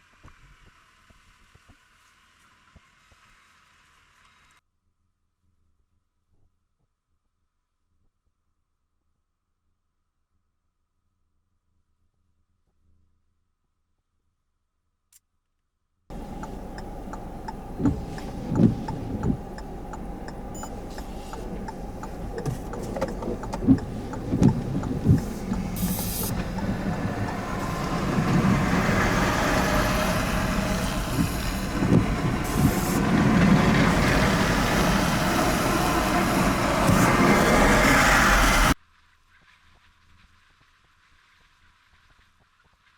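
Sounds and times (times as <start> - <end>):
rough engine noise: 16.1 - 38.8
vehicle engine rumbling: 16.1 - 38.8.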